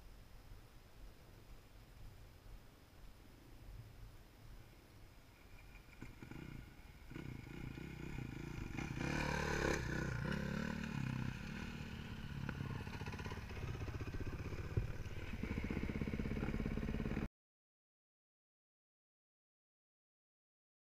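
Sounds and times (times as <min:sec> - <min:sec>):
dirt bike engine revving: 0:06.0 - 0:17.3.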